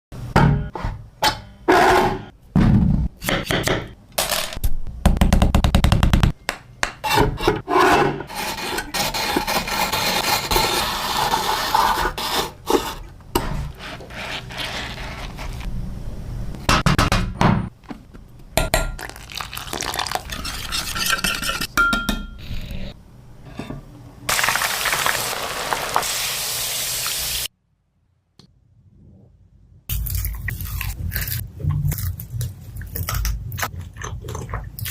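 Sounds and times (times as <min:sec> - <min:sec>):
frying in hot oil sizzle: 0:24.3 - 0:27.5.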